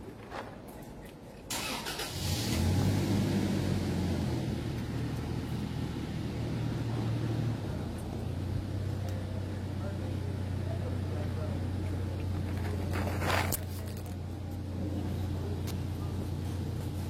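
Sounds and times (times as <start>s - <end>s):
engine starting and humming: 1.5s - 7.7s.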